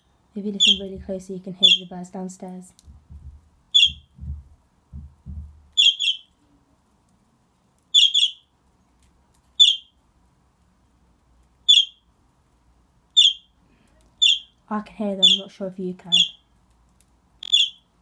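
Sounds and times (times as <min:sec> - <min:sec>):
bird chirping: 0:00.0 - 0:01.0, 0:01.6 - 0:01.9, 0:03.7 - 0:04.4, 0:05.3 - 0:06.4, 0:07.9 - 0:08.5, 0:09.6 - 0:10.0, 0:11.6 - 0:12.0, 0:13.2 - 0:13.5, 0:14.2 - 0:14.6, 0:15.2 - 0:15.5, 0:16.1 - 0:16.4, 0:17.4 - 0:18.0
low thuds: 0:02.8 - 0:05.8.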